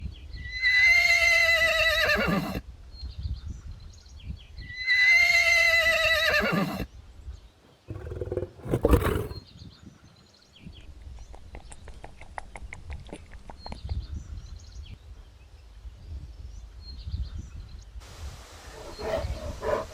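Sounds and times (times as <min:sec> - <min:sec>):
horse whinnying: 0:00.6 - 0:02.6, 0:04.9 - 0:06.8, 0:07.9 - 0:09.4.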